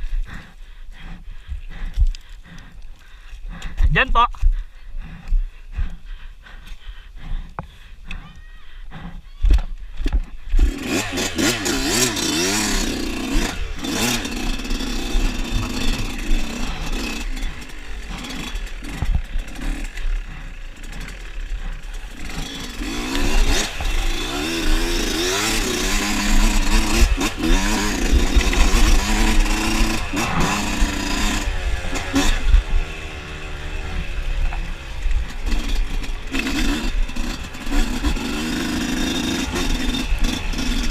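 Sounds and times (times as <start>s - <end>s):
dirt bike engine revving: 10.4s - 40.9s.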